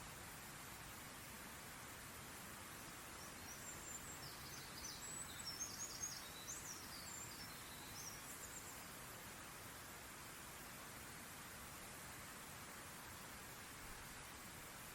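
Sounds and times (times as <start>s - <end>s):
outdoor background hiss: 0.0s - 14.9s
songbird twittering: 3.2s - 8.9s.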